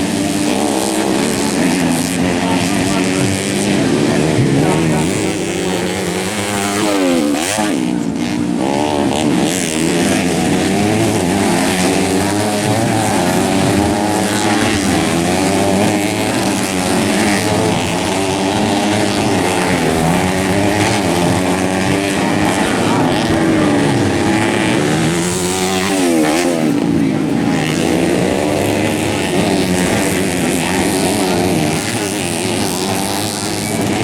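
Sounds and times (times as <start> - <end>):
dirt bike engines racing: 0.0 - 34.0.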